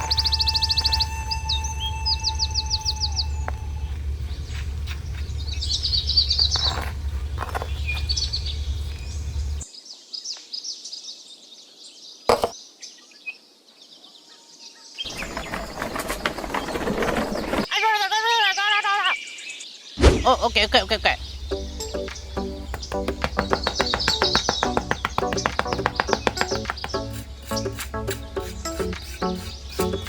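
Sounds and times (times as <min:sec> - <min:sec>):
low hum: 0:00.0 - 0:09.6, 0:20.0 - 0:28.6
small birds chirping: 0:00.0 - 0:17.5, 0:18.5 - 0:30.0
sharp knock: 0:20.0 - 0:27.2
light taps and clicks: 0:22.0 - 0:27.0.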